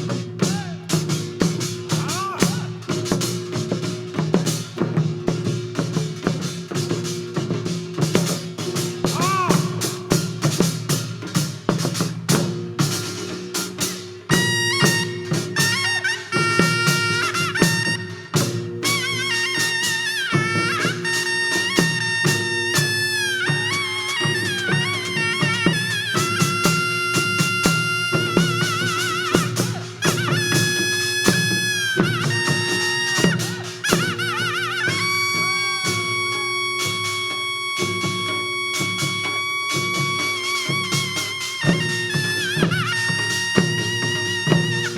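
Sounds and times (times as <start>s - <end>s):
barrel drum strokes: 0.0s - 44.9s
wind instrument melody: 14.3s - 44.9s.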